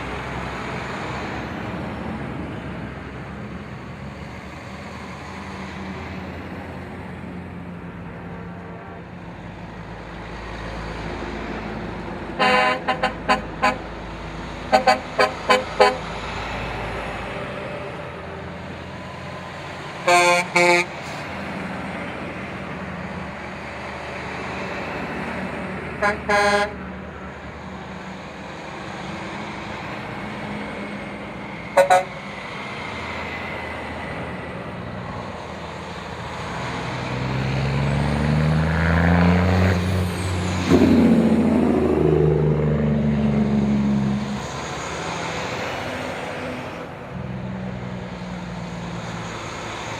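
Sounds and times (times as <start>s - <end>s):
truck engines rumbling: 0.0s - 49.9s
truck horns honking: 12.2s - 16.7s, 19.9s - 21.5s, 25.8s - 27.4s, 31.5s - 32.4s.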